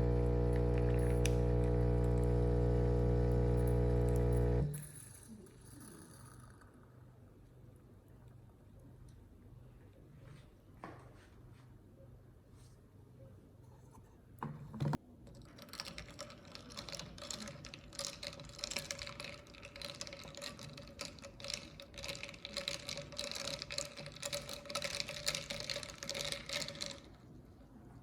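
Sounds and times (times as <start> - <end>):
coffee machine pump humming: 0.0 - 4.8.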